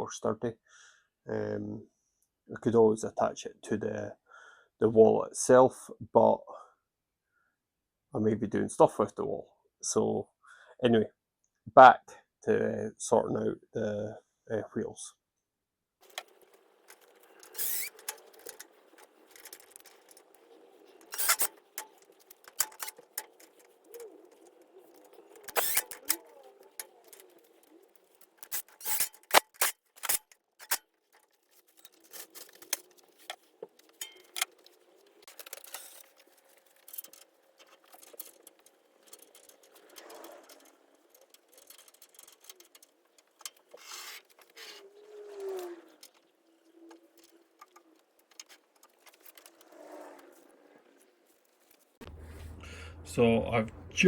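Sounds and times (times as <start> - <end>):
tools and hardware clattering: 16.0 - 50.8.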